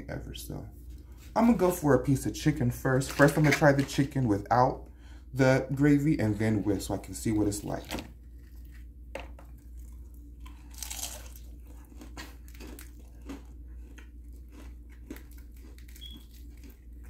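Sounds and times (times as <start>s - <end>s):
crunchy chewing: 7.7s - 17.0s
biting crispy fried chicken: 9.6s - 17.0s.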